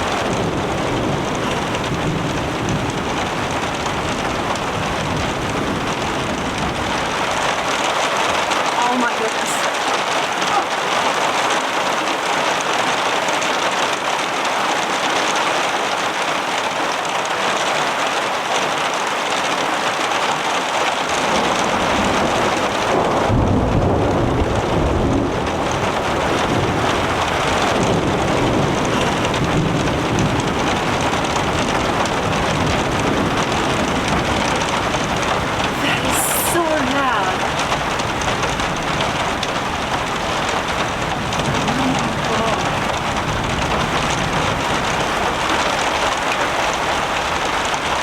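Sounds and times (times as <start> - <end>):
low rumble of thunder: 0.0 - 8.6, 21.2 - 35.8, 37.5 - 48.0
heavy rain falling: 0.0 - 48.0.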